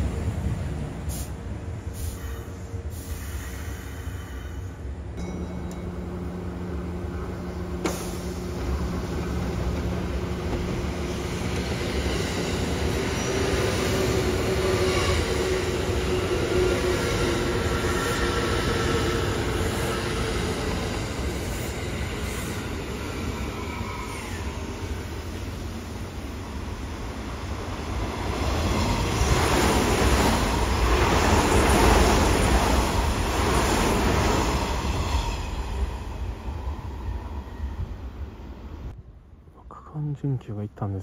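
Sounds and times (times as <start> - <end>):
electric train rumbling: 0.0 - 39.0.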